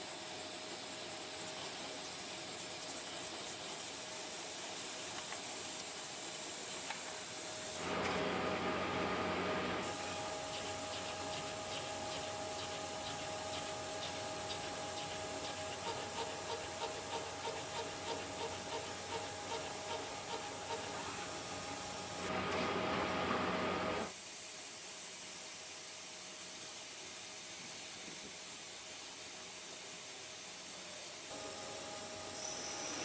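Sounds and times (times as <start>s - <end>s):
hiss of cutting and coolant: 9.8s - 22.3s, 23.9s - 33.0s
machine tone: 9.8s - 24.1s, 31.3s - 33.0s.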